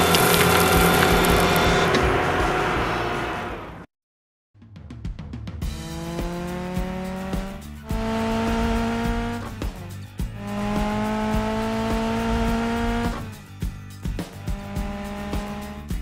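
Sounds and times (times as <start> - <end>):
cartoon car engine revving: 0.0 - 3.9, 5.6 - 13.4, 14.3 - 16.0
background music with steady beat: 4.8 - 16.0.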